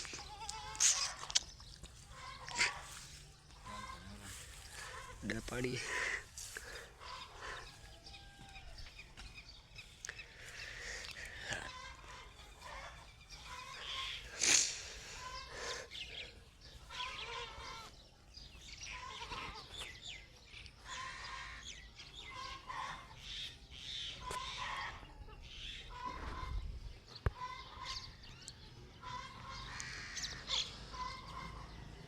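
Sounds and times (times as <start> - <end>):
birds chirping and clucking: 0.0 - 32.0.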